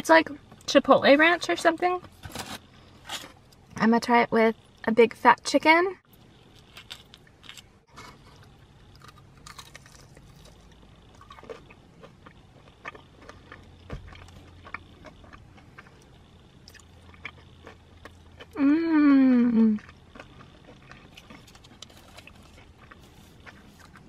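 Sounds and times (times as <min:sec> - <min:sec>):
person chewing crispy food: 0:06.5 - 0:24.0.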